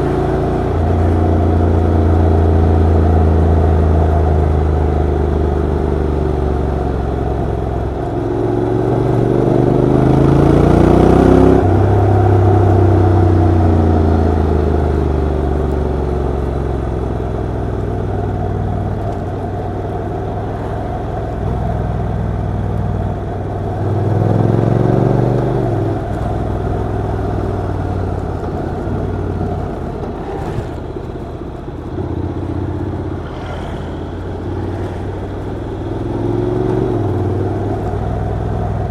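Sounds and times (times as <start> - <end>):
gear shifting: 6.0 - 38.9
motorcycle engine revving: 23.5 - 38.9.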